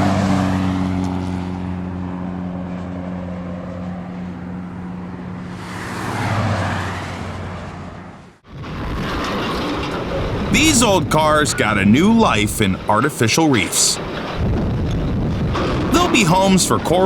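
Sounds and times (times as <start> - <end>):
vehicle passing by: 0.0 - 8.4
vehicle engine droning: 0.0 - 8.5.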